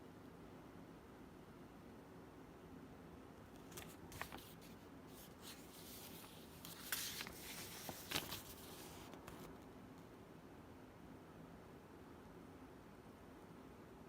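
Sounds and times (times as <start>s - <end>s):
faint clicks and rustles: 3.6s - 9.7s.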